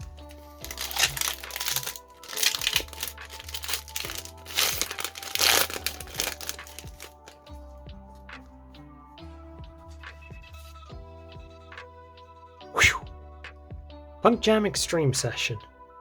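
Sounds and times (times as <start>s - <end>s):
foil wrapper crinkling and tearing: 0.0s - 7.5s
background music: 0.0s - 16.0s.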